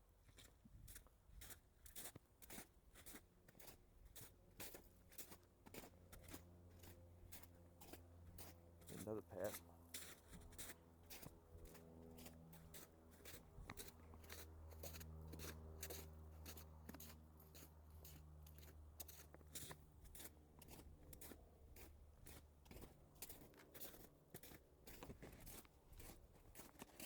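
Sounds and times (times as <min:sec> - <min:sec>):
crunching footsteps in snow: 0:00.2 - 0:27.0.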